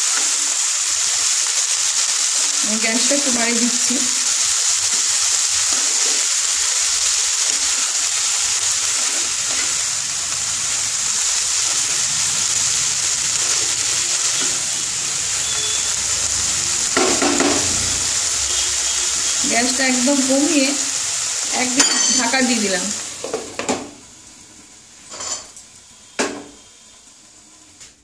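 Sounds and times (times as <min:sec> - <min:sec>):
spinach sizzling in hot oil: 0:00.0 - 0:27.9
spatula scraping wok: 0:04.4 - 0:22.6.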